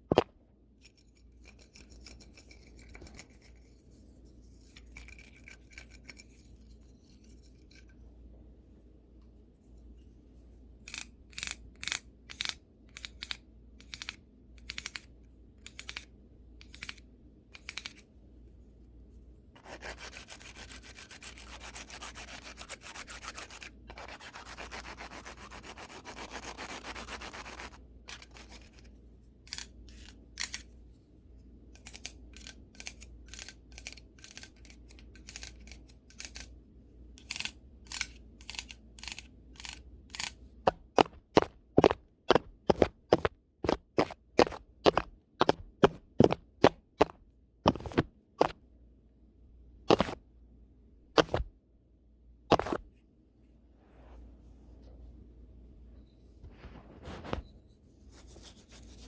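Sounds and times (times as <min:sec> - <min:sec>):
brush scrubbing on microphone: 0:58.0 - 0:59.0.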